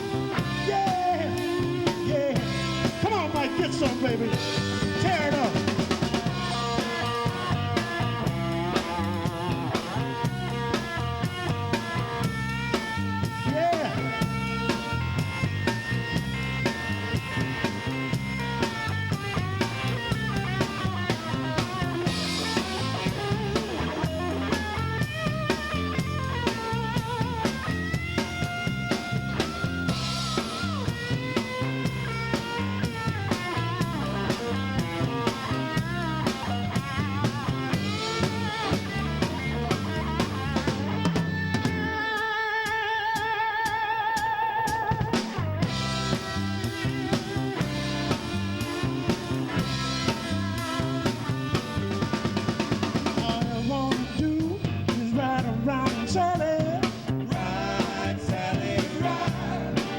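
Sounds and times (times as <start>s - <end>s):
drum kit beat: 0.0s - 59.9s
rock band playing: 0.0s - 59.9s.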